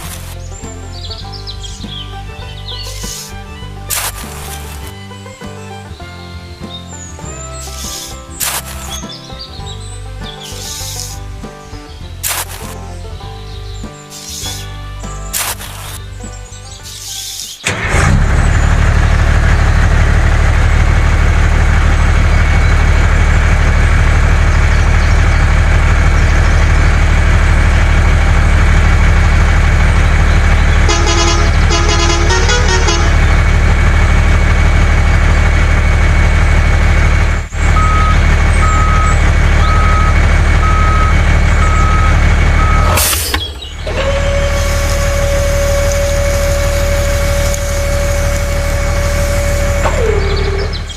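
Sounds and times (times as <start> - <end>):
vehicle engine running: 0.0 - 50.9
steady horn-like tone: 30.9 - 33.5, 44.1 - 50.0
electronic beeps: 37.8 - 43.6.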